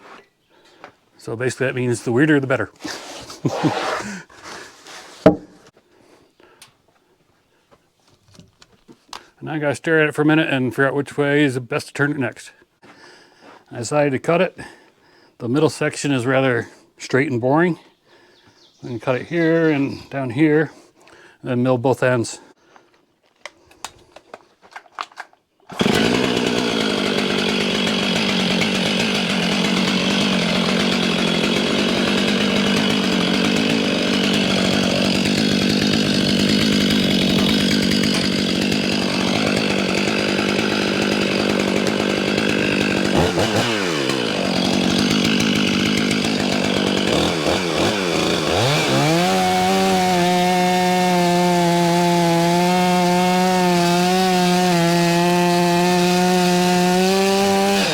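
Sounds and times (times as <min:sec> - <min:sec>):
chainsaw cutting log: 0:02.2 - 0:05.7, 0:25.7 - 0:57.9.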